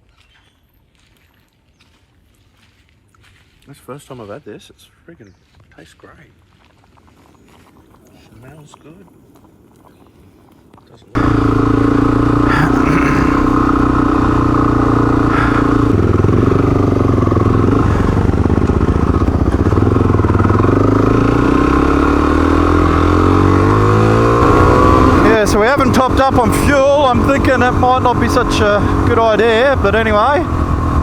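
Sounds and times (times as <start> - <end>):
motorcycle engine running: 11.2 - 31.0.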